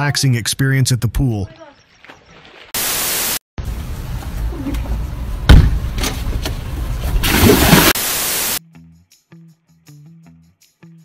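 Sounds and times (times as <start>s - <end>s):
static-like hiss: 2.8s - 3.4s, 7.9s - 8.6s
loud thump: 5.5s - 5.9s.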